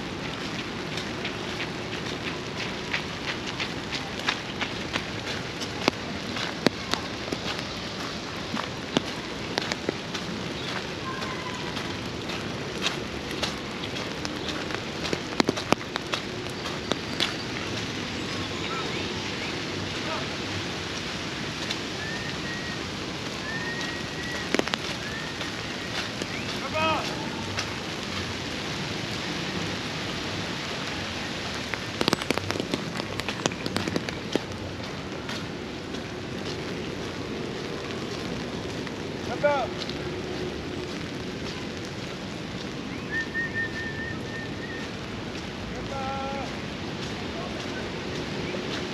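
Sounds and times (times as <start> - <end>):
raindrops tapping close by: 0.0 - 48.9
steady rain hiss: 0.0 - 48.9.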